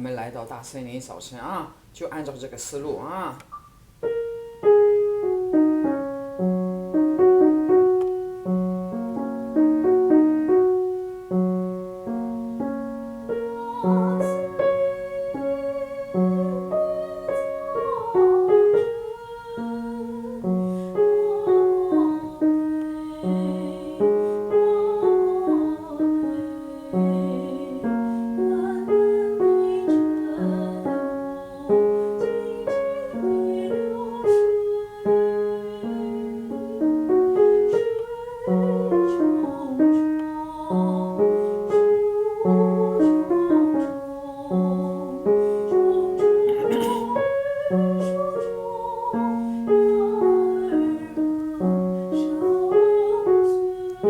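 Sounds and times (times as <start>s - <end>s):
piano accompaniment: 0.0s - 54.0s
woman singing with vibrato: 13.3s - 54.0s.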